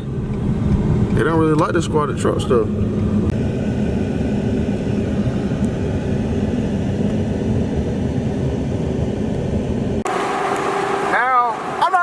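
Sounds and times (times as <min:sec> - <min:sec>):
road rumble: 0:00.0 - 0:12.0
truck engine hum: 0:00.0 - 0:12.0.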